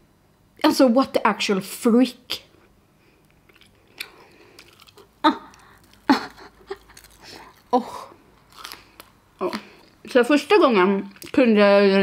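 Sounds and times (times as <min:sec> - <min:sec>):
person chewing crunchy food: 0:03.2 - 0:10.1.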